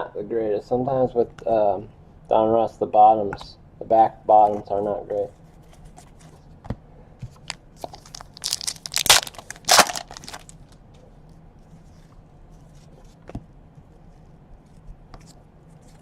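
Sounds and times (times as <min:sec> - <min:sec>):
wrapper crinkling and tearing: 0:07.5 - 0:10.6.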